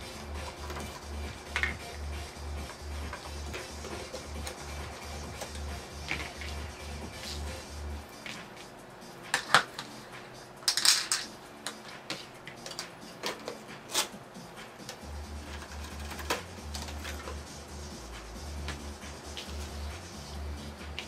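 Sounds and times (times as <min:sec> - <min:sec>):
metal parts and tools clinking: 0:10.6 - 0:14.2.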